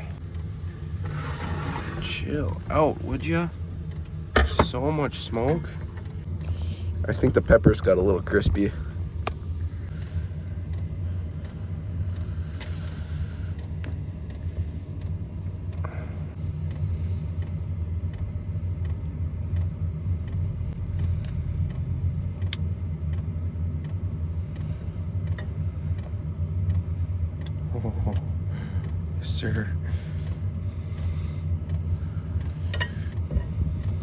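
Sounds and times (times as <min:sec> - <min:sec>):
low motor hum: 0:00.0 - 0:34.0
light clicks and ticks: 0:16.6 - 0:29.0, 0:30.2 - 0:34.0.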